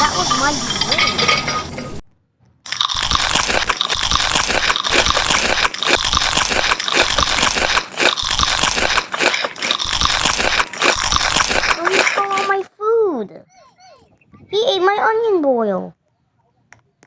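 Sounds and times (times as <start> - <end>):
pet chewing and crunching food: 2.7 - 12.7.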